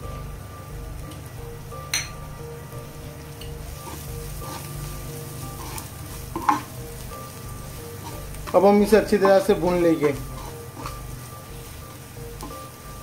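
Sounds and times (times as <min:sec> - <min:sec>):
onions sizzling in hot oil: 0:00.0 - 0:13.0
wooden spatula stirring: 0:03.6 - 0:13.0.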